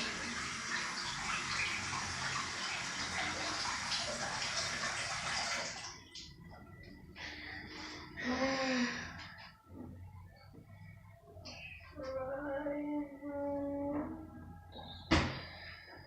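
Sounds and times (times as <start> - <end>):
tap water running into basin: 0.0 - 6.3.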